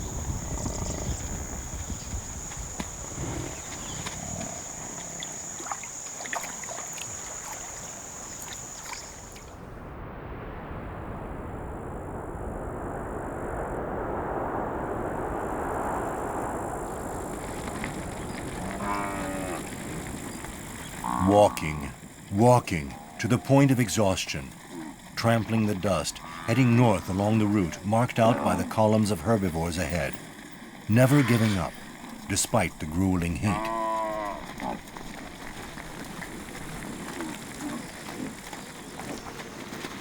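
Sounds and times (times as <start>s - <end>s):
high insect buzz: 0.0s - 9.5s, 15.8s - 34.9s.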